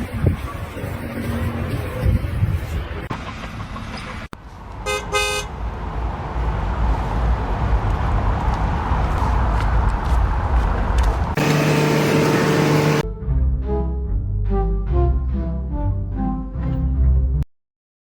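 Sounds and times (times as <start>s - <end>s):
vehicle horn toots: 4.9s - 5.5s, 11.4s - 13.0s.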